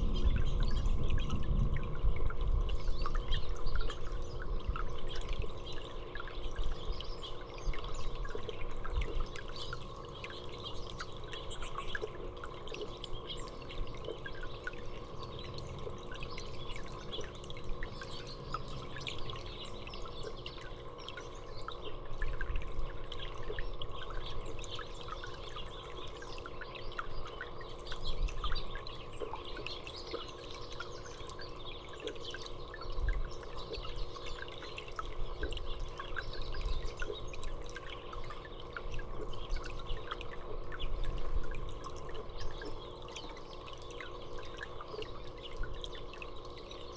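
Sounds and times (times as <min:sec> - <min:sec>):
low hum: 0:00.0 - 0:29.7
water trickling and dripping: 0:00.0 - 0:46.9
small birds chirping: 0:02.8 - 0:22.3, 0:23.0 - 0:46.9.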